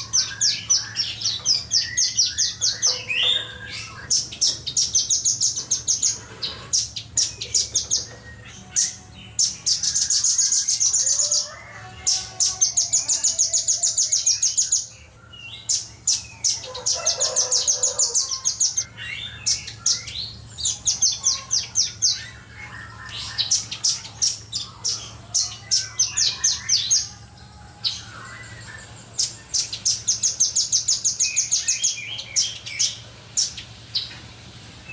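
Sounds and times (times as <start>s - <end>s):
bird singing high trills: 0.0s - 34.1s.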